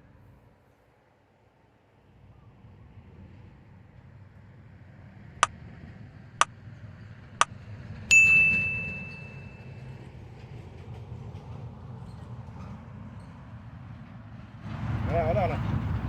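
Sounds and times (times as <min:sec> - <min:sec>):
bright metallic ding: 0:08.1 - 0:09.9.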